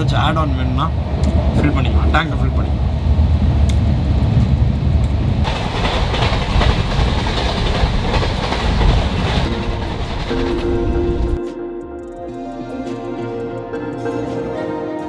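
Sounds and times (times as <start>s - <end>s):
train wheels rumbling on track: 0.0s - 11.4s.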